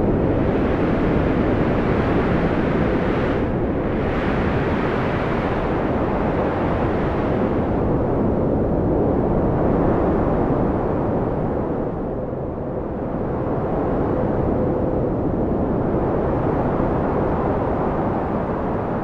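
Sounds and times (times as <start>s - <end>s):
strong wind blowing: 0.0s - 19.0s.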